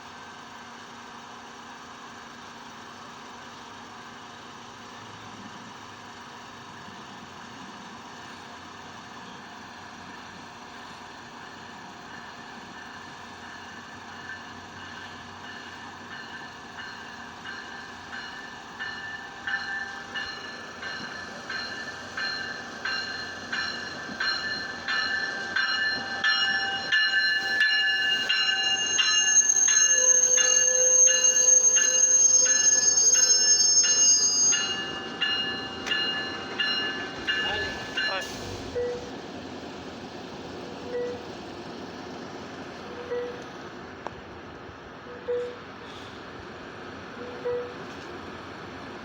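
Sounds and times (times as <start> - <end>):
train wheels clicking on rails: 9.9 - 33.3, 34.5 - 48.9
high-pitched brake squeal: 26.0 - 35.0.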